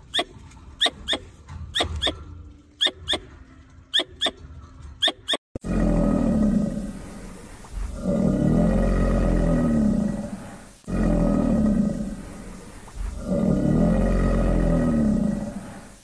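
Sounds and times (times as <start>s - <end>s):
squirrel chirping: 0.0s - 2.2s, 2.8s - 3.3s, 3.9s - 4.4s, 5.0s - 5.4s
crocodilian growling roars: 5.6s - 16.0s.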